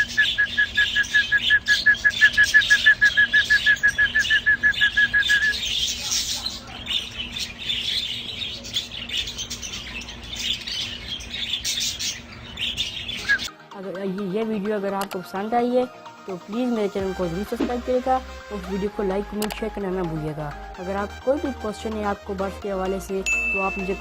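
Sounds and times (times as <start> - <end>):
caged birds chirping: 0.0 - 13.5.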